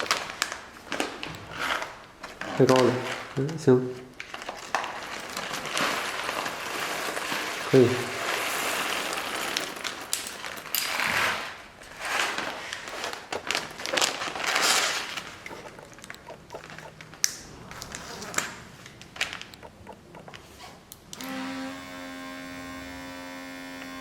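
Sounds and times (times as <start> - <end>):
plastic bag rustling and crinkling: 4.2 - 15.4
light clicks and taps: 15.4 - 16.9.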